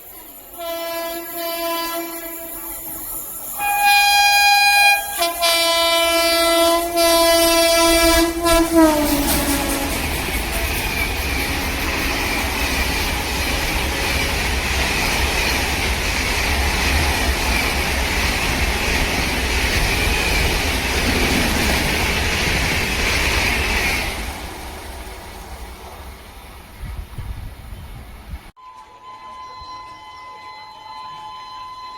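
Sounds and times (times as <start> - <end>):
train rumbling on rails: 0.0 - 28.6.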